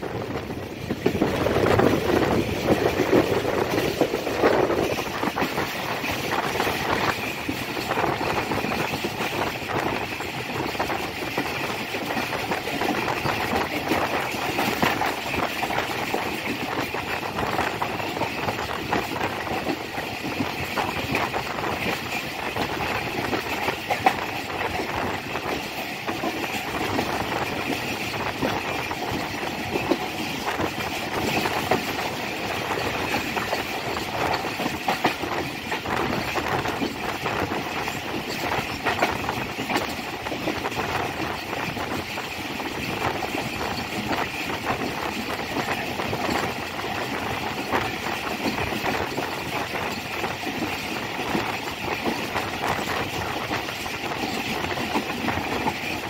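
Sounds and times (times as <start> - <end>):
train coaches rumbling: 0.0 - 56.0
train wheels rattling and clicking: 0.0 - 56.0.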